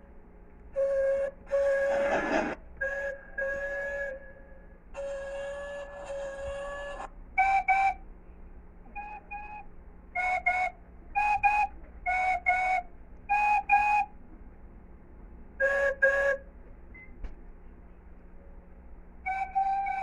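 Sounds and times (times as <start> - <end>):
train whistle toots: 0.7 - 8.1, 8.9 - 14.2, 15.6 - 17.1, 19.2 - 20.0.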